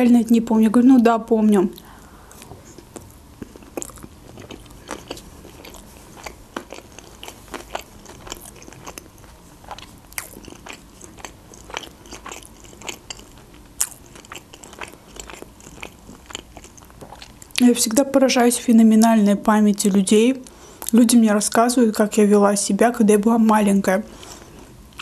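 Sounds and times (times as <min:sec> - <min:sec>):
person chewing: 0:01.8 - 0:17.6.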